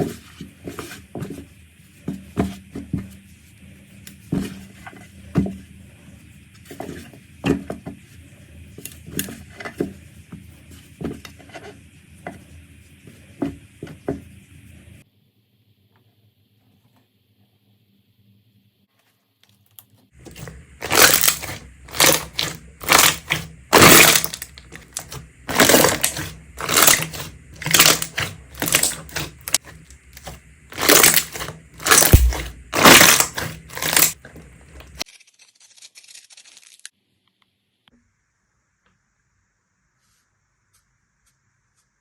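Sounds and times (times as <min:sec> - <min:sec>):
slime crunching when squeezed: 0:20.3 - 0:29.6, 0:30.2 - 0:34.2.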